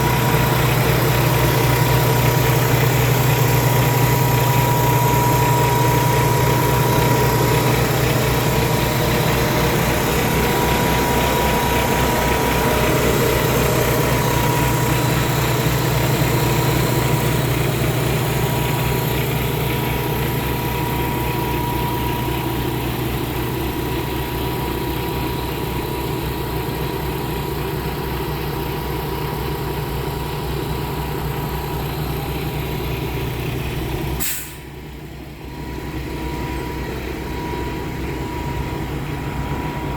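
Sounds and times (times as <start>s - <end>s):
steady high whine: 0.0s - 25.4s, 35.3s - 39.9s
diesel truck engine idling: 0.0s - 39.9s.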